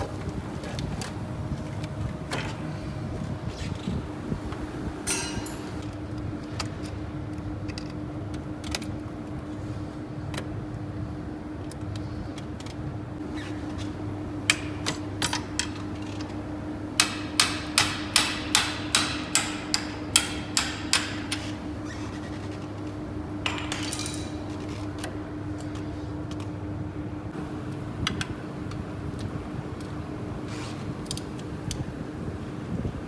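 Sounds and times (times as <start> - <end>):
steady hum: 0.0 - 8.6
hammer tapping on metal: 5.1 - 5.9, 17.0 - 21.4.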